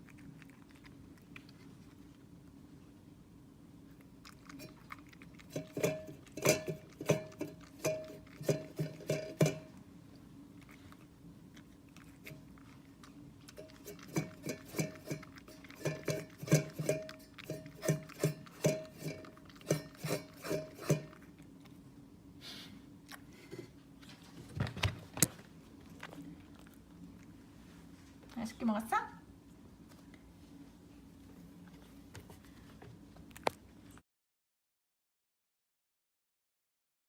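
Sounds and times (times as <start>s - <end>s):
cat chewing crunchy treat: 0.0s - 22.1s, 25.1s - 28.1s.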